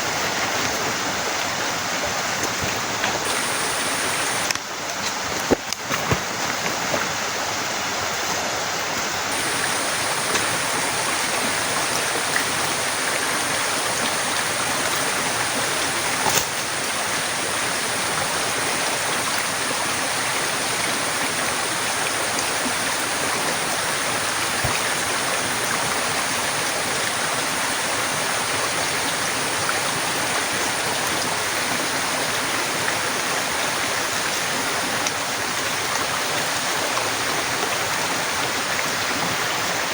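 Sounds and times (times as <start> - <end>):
heavy rain falling: 3.2 - 4.6, 9.3 - 35.2.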